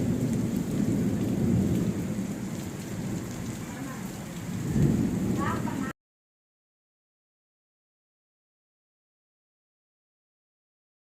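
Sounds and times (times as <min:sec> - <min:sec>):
rain falling: 0:00.0 - 0:06.0.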